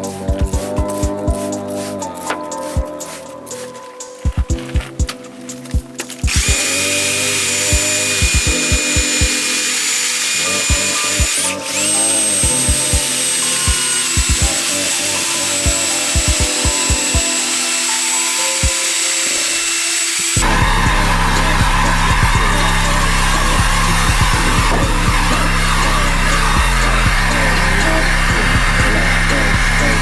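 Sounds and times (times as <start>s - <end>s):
background music with a beat: 0.0s - 19.2s, 19.8s - 30.0s
power drill whining: 6.2s - 30.0s.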